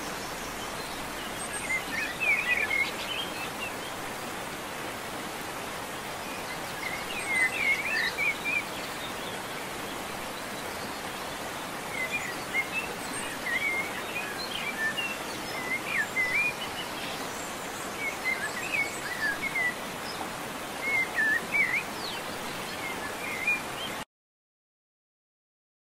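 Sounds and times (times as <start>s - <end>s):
birds chirping: 0.0s - 4.5s.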